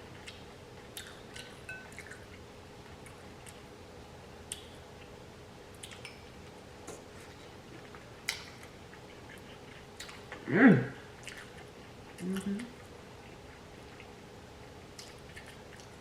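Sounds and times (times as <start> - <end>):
wet chewing and lip smacks: 0.1 - 3.7, 4.4 - 5.1, 5.7 - 10.4, 11.1 - 16.0
small mouth clicks: 4.5 - 5.1, 5.8 - 6.2.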